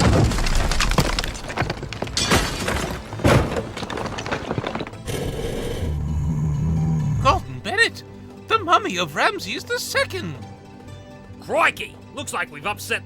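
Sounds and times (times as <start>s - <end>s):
knocks and cracks: 0.0s - 5.1s.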